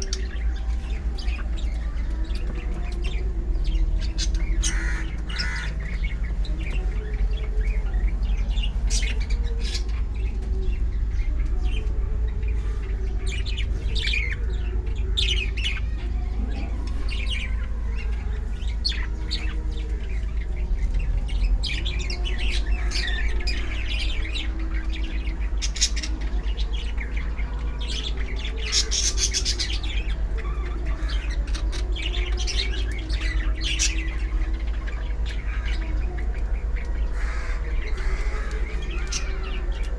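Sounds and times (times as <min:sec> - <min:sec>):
birds chirping and squawking: 0:00.0 - 0:39.9.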